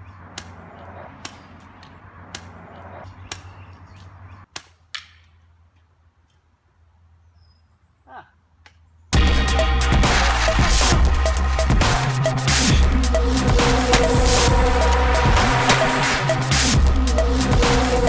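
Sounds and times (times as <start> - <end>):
electronic music with heavy beat: 9.2 - 18.0.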